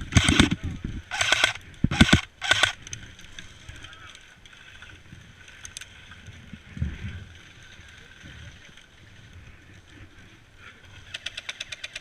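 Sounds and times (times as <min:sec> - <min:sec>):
wind noise on microphone: 0:00.0 - 0:03.8, 0:06.0 - 0:10.5.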